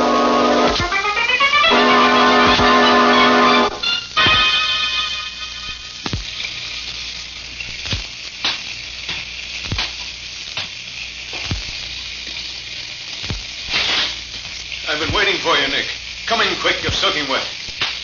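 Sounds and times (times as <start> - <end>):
steady rain: 0.0 - 18.0
slow footsteps: 6.0 - 7.0, 7.7 - 12.5, 13.2 - 15.4.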